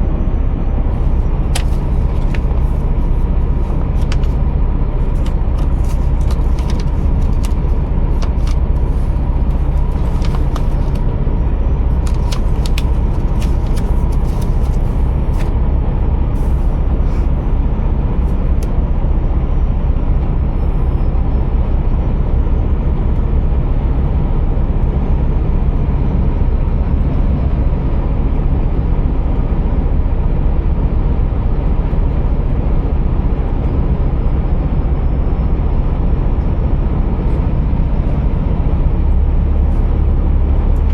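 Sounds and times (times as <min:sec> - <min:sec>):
truck engine droning: 0:00.0 - 0:40.9
sharp clicks and crackles: 0:05.0 - 0:11.1, 0:12.0 - 0:15.5.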